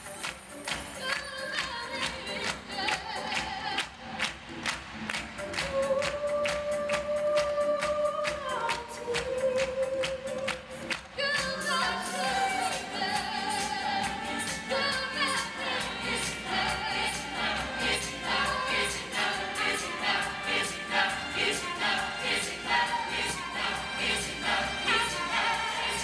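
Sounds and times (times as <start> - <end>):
choir singing a pop song: 0.0 - 4.3, 5.4 - 26.0
backing music with steady beat: 0.0 - 26.0.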